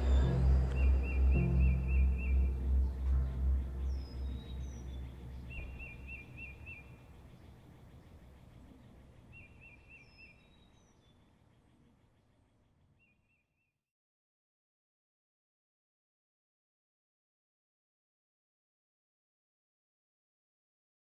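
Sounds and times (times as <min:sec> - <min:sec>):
low rumble: 0:00.0 - 0:07.7
birds calling with trills: 0:00.0 - 0:12.3.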